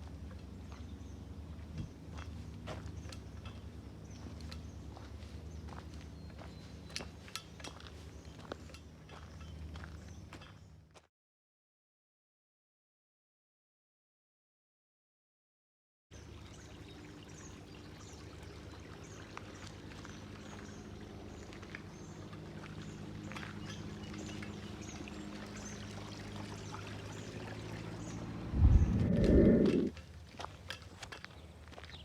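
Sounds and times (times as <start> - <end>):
stream water running: 16.2 - 32.0
low rumble on microphone: 27.0 - 30.0.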